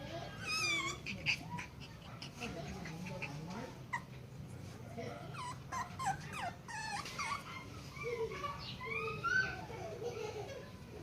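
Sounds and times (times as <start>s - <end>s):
puppy whimpering: 0.2s - 4.2s, 5.2s - 9.9s.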